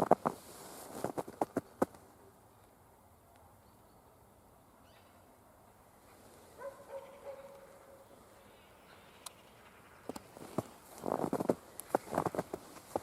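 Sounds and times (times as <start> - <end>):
faint dog barking: 6.6 - 8.1.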